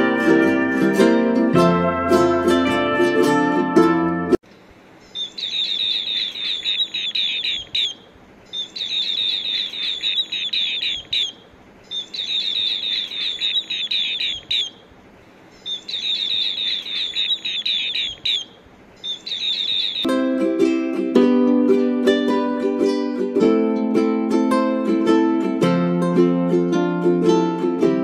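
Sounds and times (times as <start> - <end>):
bird trilled chirps: 5.0 - 14.8, 15.5 - 20.1.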